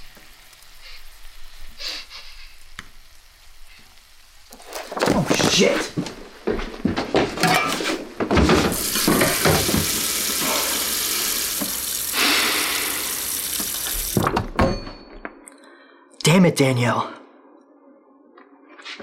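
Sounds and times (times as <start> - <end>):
knocks and clatter in kitchen: 4.6 - 10.6, 13.6 - 15.4
faucet running into metal sink: 8.7 - 14.3.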